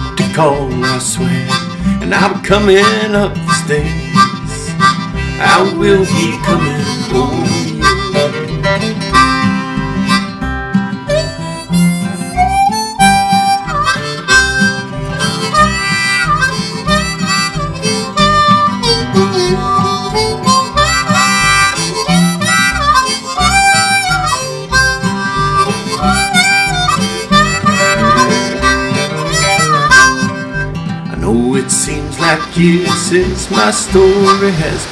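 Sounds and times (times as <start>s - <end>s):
guitar: 0.0s - 34.9s
harmonica melody: 0.0s - 34.9s
steady beat: 11.2s - 31.1s.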